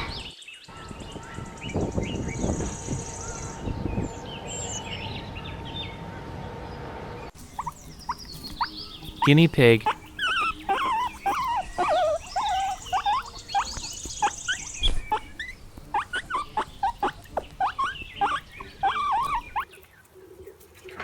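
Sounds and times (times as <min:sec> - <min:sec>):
guinea pig squeaking: 0:07.4 - 0:19.8.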